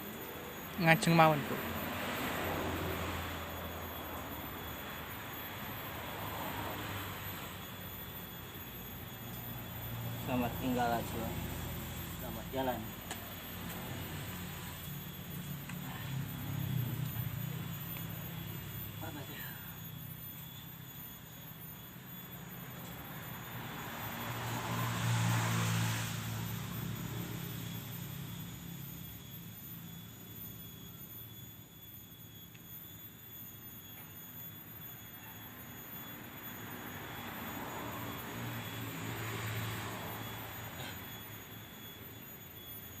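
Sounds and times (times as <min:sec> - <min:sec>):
motor vehicles passing by: 0:00.8 - 0:07.6, 0:09.9 - 0:19.5, 0:23.0 - 0:28.9, 0:37.0 - 0:41.0.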